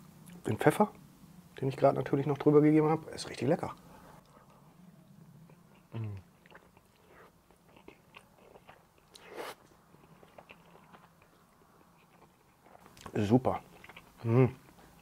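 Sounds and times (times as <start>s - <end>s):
man chewing: 3.8s - 15.0s.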